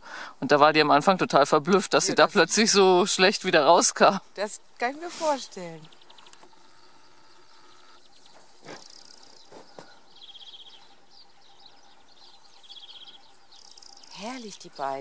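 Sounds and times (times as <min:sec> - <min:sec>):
high bird trill: 0:04.1 - 0:15.0.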